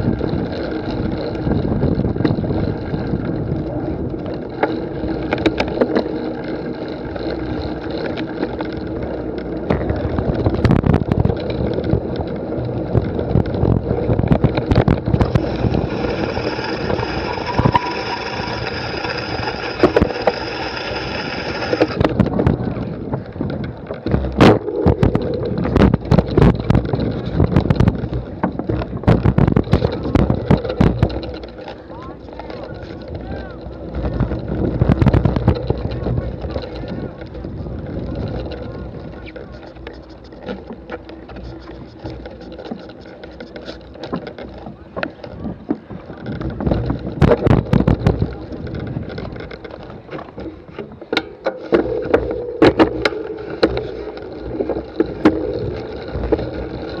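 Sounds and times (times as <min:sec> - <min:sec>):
wind buffeting microphone: 0:00.0 - 0:05.8, 0:08.5 - 0:57.0
steady pitched tone: 0:50.5 - 0:57.0.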